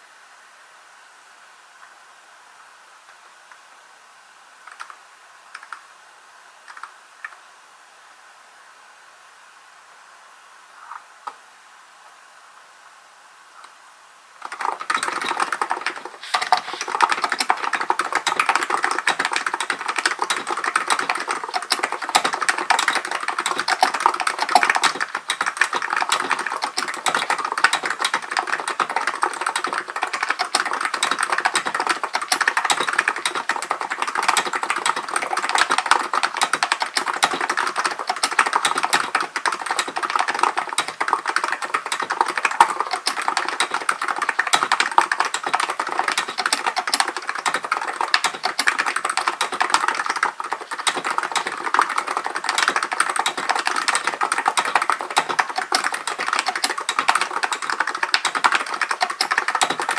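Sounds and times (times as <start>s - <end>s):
fast keyboard typing: 14.4s - 59.9s.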